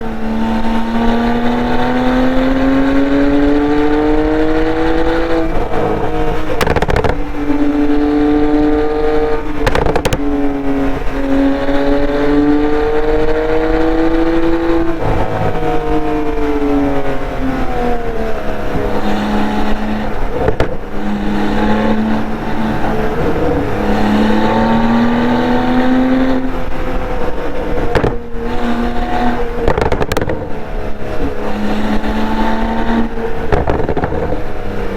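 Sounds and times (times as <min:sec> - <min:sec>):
sports car engine accelerating: 0:00.0 - 0:34.9
exhaust cracks: 0:02.8 - 0:34.9.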